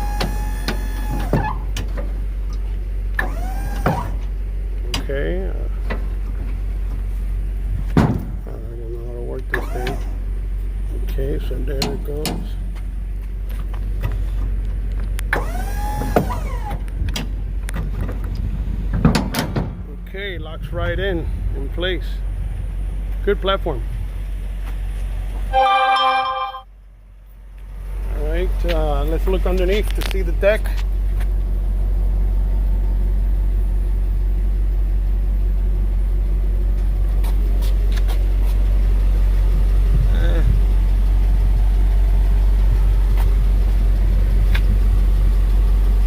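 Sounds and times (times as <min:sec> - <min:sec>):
truck engine idling: 0:00.0 - 0:46.0
motor whine: 0:03.2 - 0:04.3, 0:15.3 - 0:16.9.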